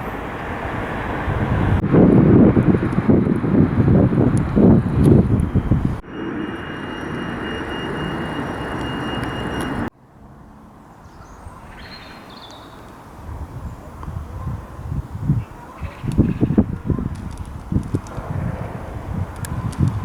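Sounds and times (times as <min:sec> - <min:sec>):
electric train running with high whine: 0:03.4 - 0:09.9
station background: 0:05.6 - 0:09.9
faint high chirps: 0:06.0 - 0:09.9.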